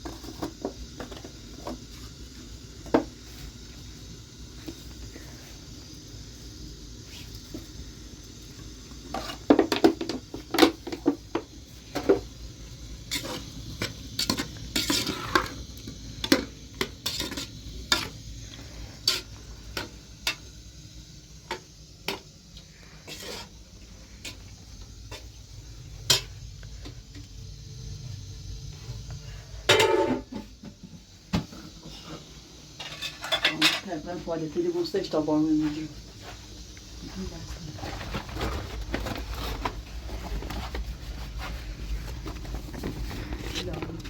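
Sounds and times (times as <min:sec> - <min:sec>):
dishes and utensils clinking: 0:32.8 - 0:33.9.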